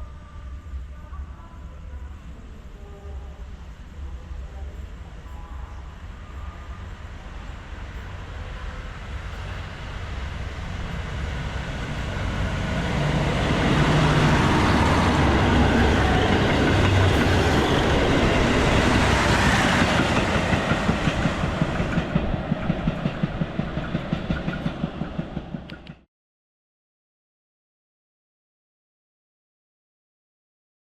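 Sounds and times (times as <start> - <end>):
diesel train passing: 0.0 - 26.0
wheels clacking over rail joints: 9.3 - 26.0.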